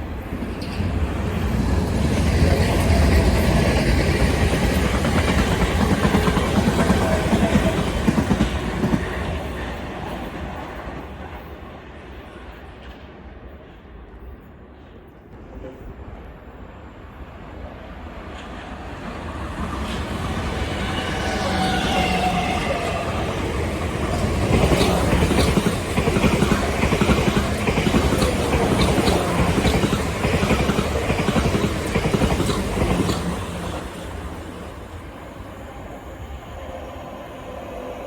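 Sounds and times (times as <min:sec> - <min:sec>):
passenger train passing: 0:00.0 - 0:38.0
train wheels clattering: 0:18.3 - 0:34.6.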